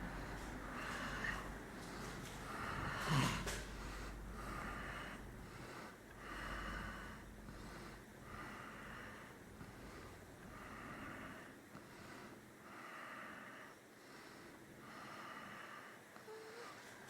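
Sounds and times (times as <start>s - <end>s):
person breathing heavily: 0.0s - 16.8s
loud snort: 2.8s - 3.6s.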